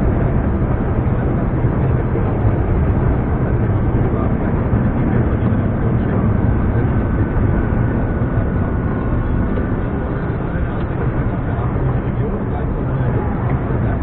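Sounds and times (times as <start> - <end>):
road noise: 0.0 - 14.0
truck diesel engine running: 0.0 - 14.0.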